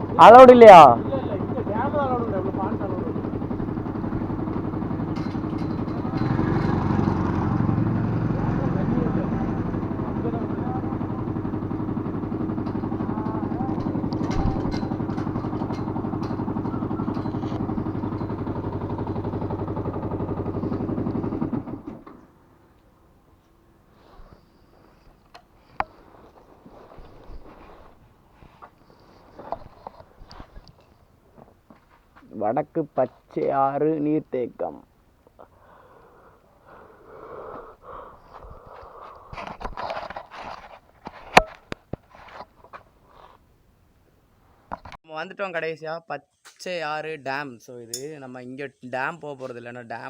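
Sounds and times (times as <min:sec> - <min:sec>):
motorcycle engine idling: 0:00.0 - 0:23.0
person breathing hard: 0:35.4 - 0:39.6.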